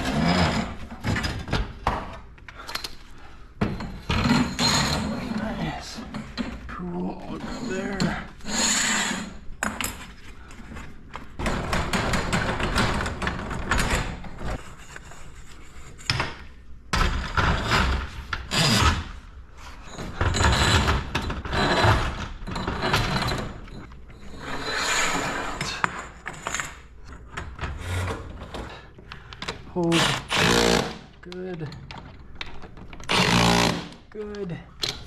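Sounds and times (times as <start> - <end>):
metal hardware scraping: 3.6 - 16.2, 19.6 - 28.8.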